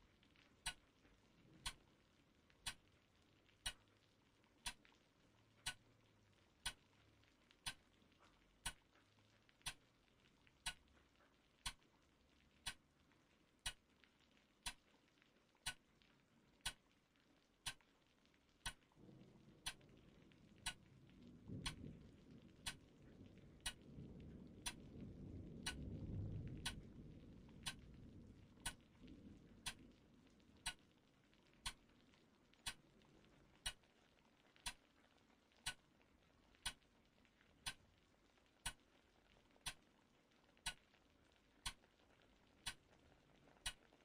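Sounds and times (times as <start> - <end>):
clock ticking: 0.6 - 0.9, 1.6 - 1.8, 2.6 - 2.8, 3.6 - 3.8, 4.6 - 4.9, 5.6 - 5.9, 6.6 - 6.9, 7.6 - 8.9, 9.6 - 9.9, 10.6 - 10.9, 11.6 - 11.9, 12.6 - 12.8, 13.6 - 13.8, 14.6 - 14.8, 15.6 - 15.9, 16.6 - 16.9, 17.6 - 17.8, 18.6 - 18.9, 19.6 - 19.9, 20.6 - 20.9, 21.5 - 22.0, 22.6 - 23.0, 23.6 - 23.8, 24.6 - 25.0, 25.6 - 26.9, 27.6 - 27.9, 28.6 - 28.9, 29.6 - 30.0, 30.6 - 31.0, 31.6 - 32.0, 32.6 - 32.9, 33.6 - 33.9, 34.6 - 35.0, 35.6 - 35.9, 36.6 - 36.8, 37.6 - 38.0, 38.6 - 39.0, 39.6 - 39.9, 40.6 - 41.0, 41.6 - 41.9, 42.6 - 44.0.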